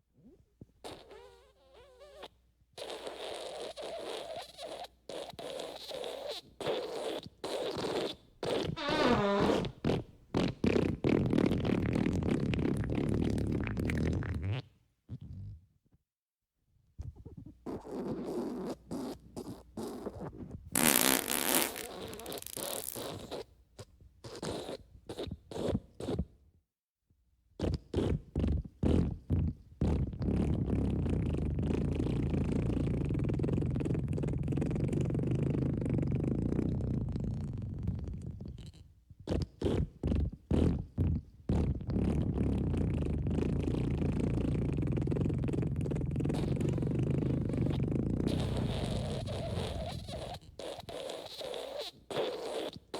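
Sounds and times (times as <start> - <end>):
fart sound effects: 0.8 - 14.6, 20.7 - 23.4, 39.3 - 52.9.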